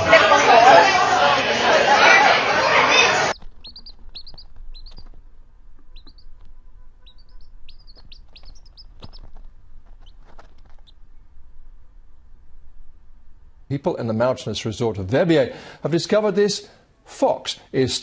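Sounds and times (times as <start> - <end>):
small bird chirping: 3.3 - 11.4.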